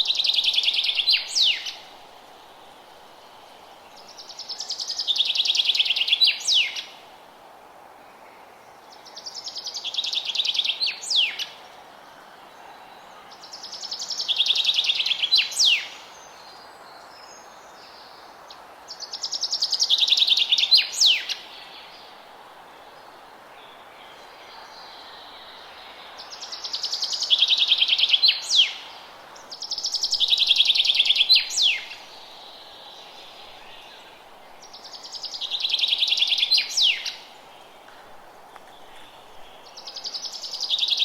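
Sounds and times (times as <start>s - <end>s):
songbird singing trills: 0.0s - 1.9s, 4.0s - 7.0s, 12.6s - 18.2s, 19.0s - 22.1s, 23.7s - 37.9s
steady background hiss: 0.0s - 41.0s.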